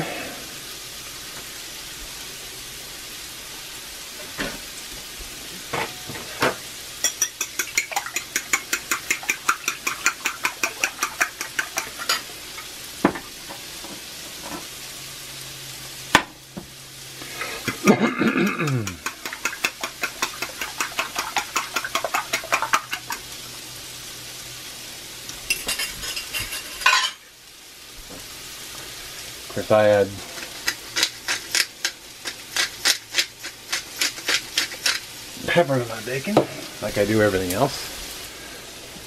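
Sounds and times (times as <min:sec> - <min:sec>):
food sizzling in a skillet: 0:00.0 - 0:39.0
fork whisking eggs in a bowl: 0:07.0 - 0:12.2, 0:18.5 - 0:23.2, 0:30.3 - 0:35.1.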